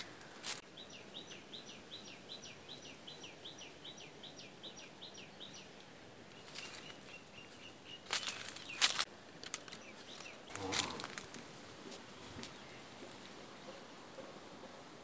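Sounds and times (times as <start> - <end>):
leaves and branches rustling: 0.0 - 0.8, 5.6 - 14.2.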